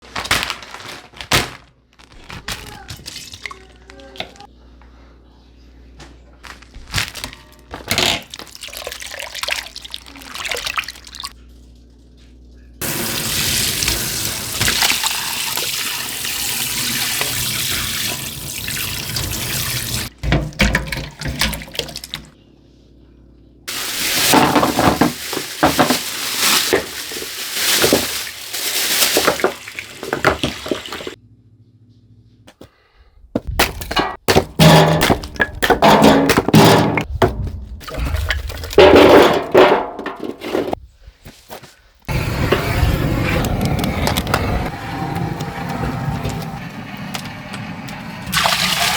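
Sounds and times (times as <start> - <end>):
splashing: 8.2 - 11.3, 23.7 - 31.2, 37.8 - 39.4
water running: 8.2 - 11.4, 12.8 - 22.4, 23.7 - 31.2, 48.2 - 48.9
clattering: 38.8 - 40.8.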